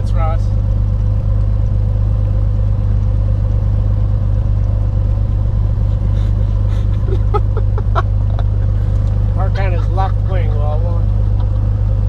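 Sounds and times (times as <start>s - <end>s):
aircraft piston engine drone: 0.1s - 12.0s.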